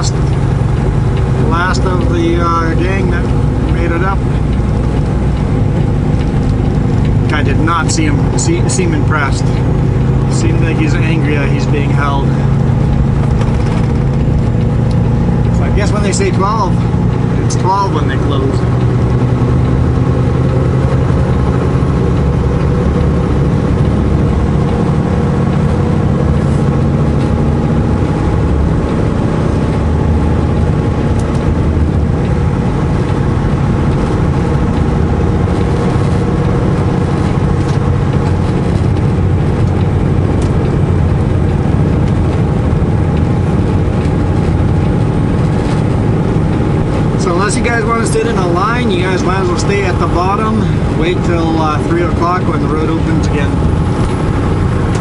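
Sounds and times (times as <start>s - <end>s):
truck diesel engine drone: 0.0s - 55.0s.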